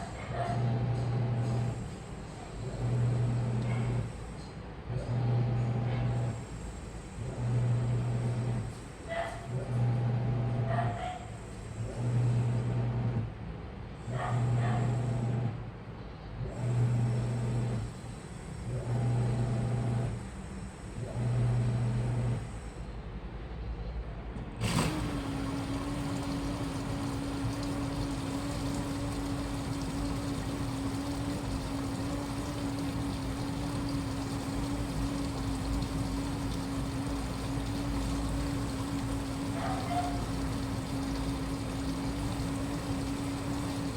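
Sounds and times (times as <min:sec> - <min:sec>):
machine hum with rushing hiss: 0:24.6 - 0:43.9
washing machine click: 0:24.6 - 0:43.9
washing machine drum motor humming: 0:24.6 - 0:43.9.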